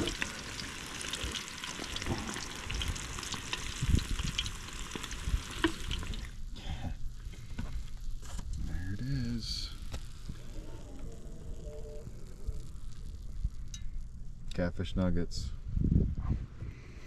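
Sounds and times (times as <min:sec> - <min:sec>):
fish frying in hot oil: 0:00.0 - 0:07.2.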